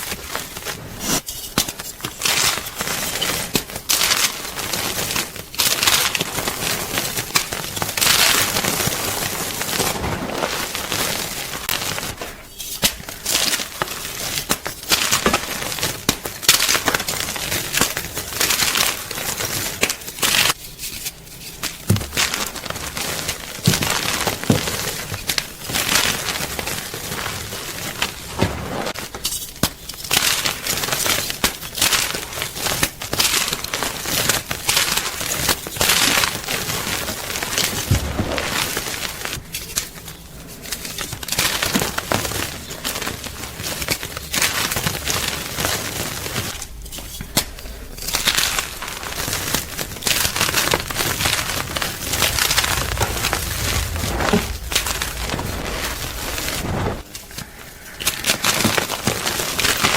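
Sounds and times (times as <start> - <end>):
chalk crunching and crumbling: 40.4 - 59.2.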